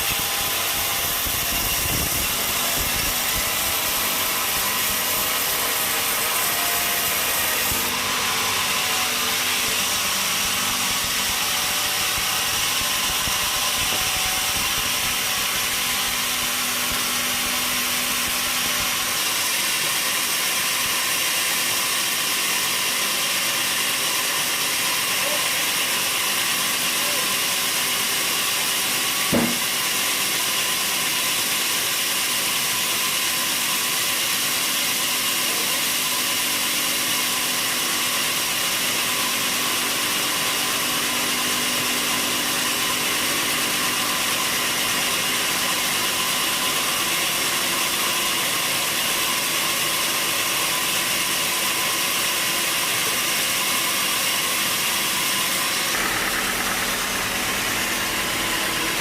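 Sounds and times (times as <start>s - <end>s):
sawmill machinery running: 0.0s - 59.0s
knock: 29.3s - 29.7s.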